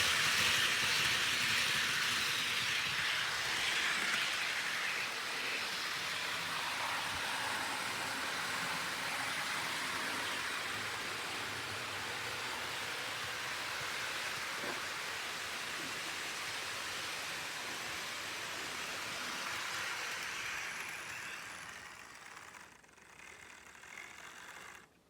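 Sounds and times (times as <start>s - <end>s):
model train rolling on track: 0.0s - 25.0s.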